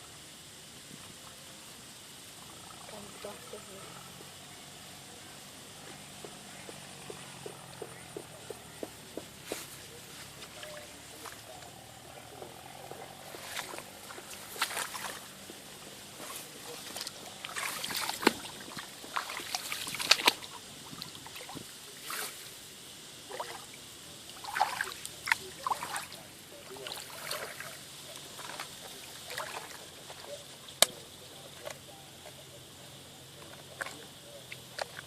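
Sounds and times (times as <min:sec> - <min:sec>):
water splashing and sloshing: 0:12.5 - 0:22.6, 0:23.2 - 0:31.8, 0:33.4 - 0:35.0.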